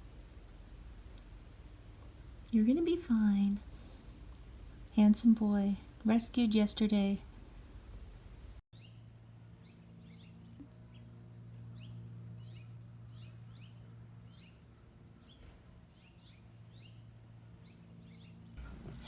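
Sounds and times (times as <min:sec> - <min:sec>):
steady low hum: 0:00.0 - 0:15.2, 0:16.4 - 0:19.0
small birds chirping: 0:05.8 - 0:19.0.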